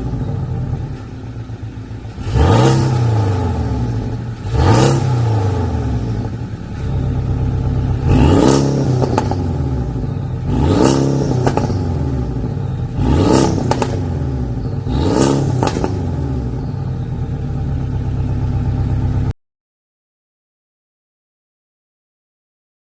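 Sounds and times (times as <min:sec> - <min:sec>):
car engine revving: 0:00.0 - 0:19.3
exhaust pops: 0:03.8 - 0:16.8.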